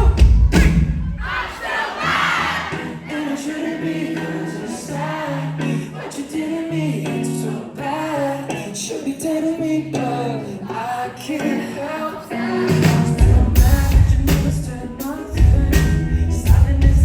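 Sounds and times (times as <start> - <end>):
person singing lead vocal: 0.0 - 17.0
low bass notes: 13.1 - 14.8, 15.4 - 17.0.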